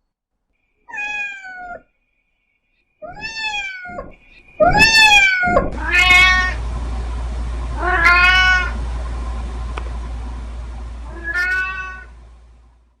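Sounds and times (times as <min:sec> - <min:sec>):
cat meowing: 0:00.8 - 0:01.9, 0:03.0 - 0:06.6, 0:07.8 - 0:08.8, 0:11.1 - 0:12.2.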